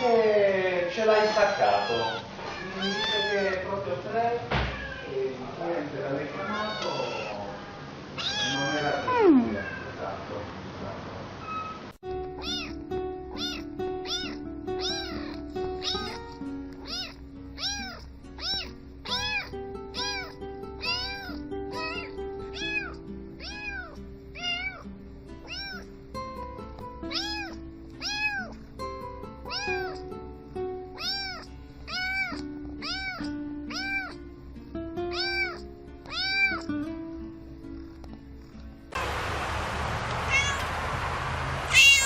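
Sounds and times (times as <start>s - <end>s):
cat meows in a tune: 0.9s - 3.7s, 4.5s - 5.2s, 6.2s - 10.0s, 11.4s - 25.9s, 27.0s - 28.6s, 29.4s - 30.1s, 30.8s - 34.3s, 35.1s - 36.7s, 40.2s - 40.7s, 41.7s - 42.0s
sustained backing notes: 19.1s - 23.5s, 39.0s - 42.0s.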